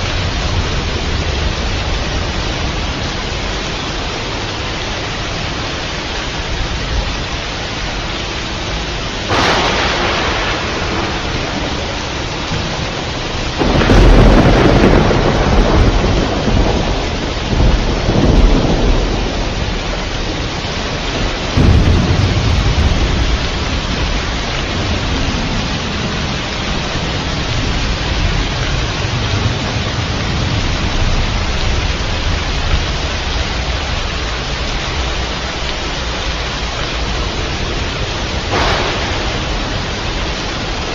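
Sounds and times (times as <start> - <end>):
heavy rain: 0.0 - 40.9
rolling thunder rumble: 8.7 - 40.9
thunder crack: 9.3 - 20.0, 21.1 - 26.3, 38.4 - 40.9.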